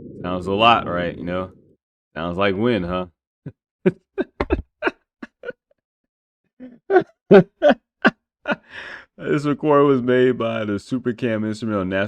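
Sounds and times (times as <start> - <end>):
man laughing: 3.9 - 5.6, 6.6 - 7.8, 8.5 - 9.0.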